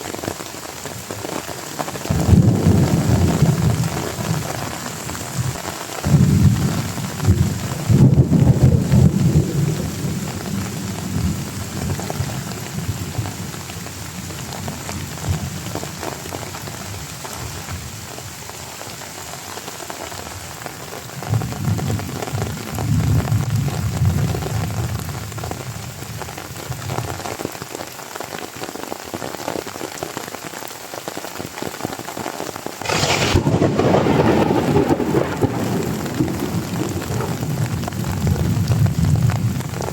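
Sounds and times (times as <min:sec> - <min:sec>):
heavy rain: 0:00.0 - 0:39.9
low rolling thunder: 0:02.1 - 0:13.5, 0:32.8 - 0:39.9
sharp thunder crash: 0:32.8 - 0:37.4.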